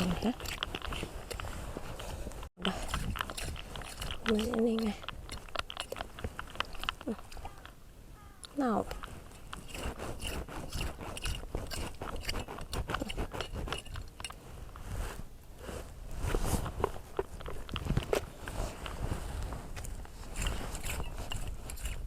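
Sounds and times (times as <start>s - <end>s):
hand digging through sand and shells: 9.0s - 22.0s.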